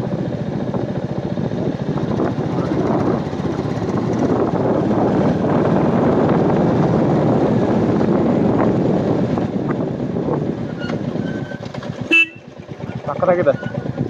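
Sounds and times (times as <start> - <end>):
wind rushing over microphone: 1.3 - 12.2.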